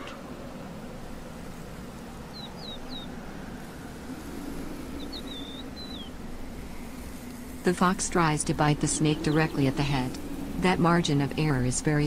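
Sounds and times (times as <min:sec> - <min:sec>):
low outdoor rumble: 0:00.0 - 0:12.0
small bird chirping: 0:02.3 - 0:03.2, 0:05.0 - 0:06.2.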